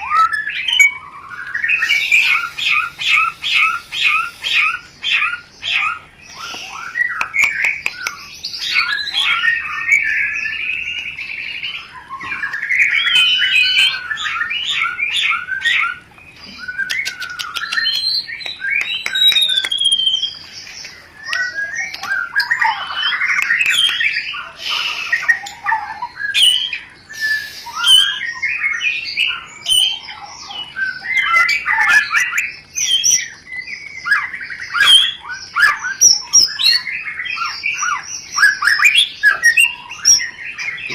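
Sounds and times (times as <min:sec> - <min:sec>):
bird singing rapid varied song: 0:00.0 - 0:40.9
bird clicking chatter: 0:01.4 - 0:04.9, 0:06.0 - 0:09.4, 0:15.0 - 0:25.6.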